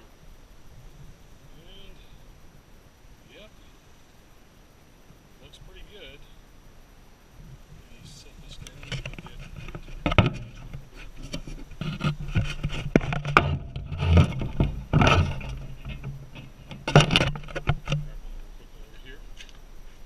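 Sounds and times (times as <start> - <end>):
low steady hum: 0.0 - 20.0
objects knocking and scraping: 8.6 - 18.2.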